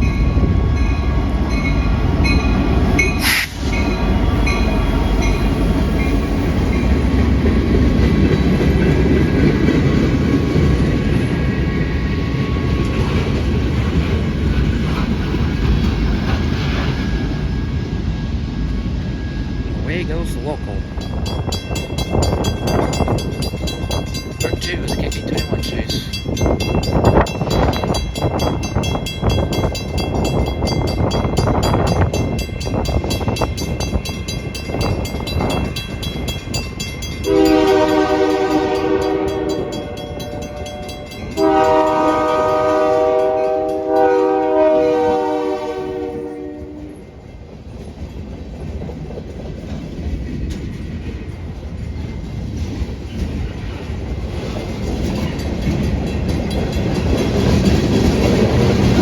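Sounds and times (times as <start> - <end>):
train wheel clatter: 0.0 - 19.8, 20.6 - 44.2, 46.8 - 59.0
multi-chime train horn: 37.1 - 47.2.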